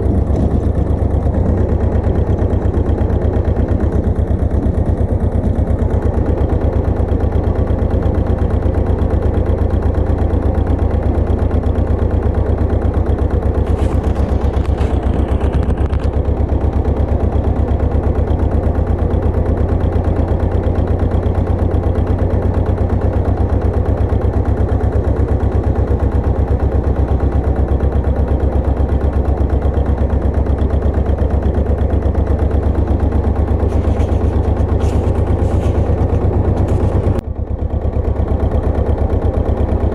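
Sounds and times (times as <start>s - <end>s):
tractor engine chugging: 0.0s - 39.9s
rustling or clattering: 33.6s - 37.2s.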